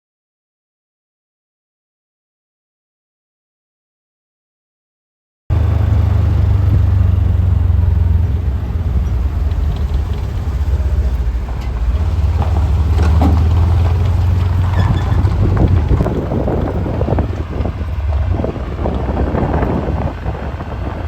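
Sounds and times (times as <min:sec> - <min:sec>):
engine and road noise rumble: 0:05.5 - 0:21.0
knocks and rattles: 0:08.3 - 0:20.2.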